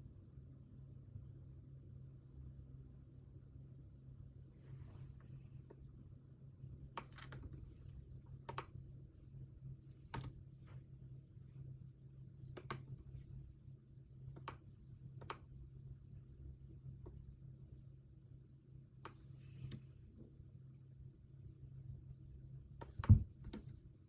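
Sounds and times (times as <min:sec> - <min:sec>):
keyboard keystrokes: 0:07.0 - 0:07.8, 0:09.9 - 0:10.4, 0:12.5 - 0:13.2, 0:22.8 - 0:23.8.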